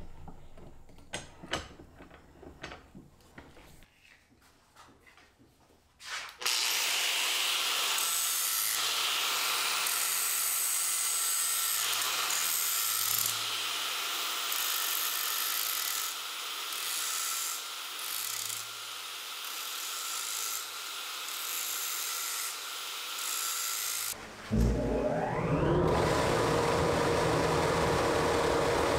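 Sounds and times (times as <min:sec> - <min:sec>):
power tool grinding: 0:24.8 - 0:28.9.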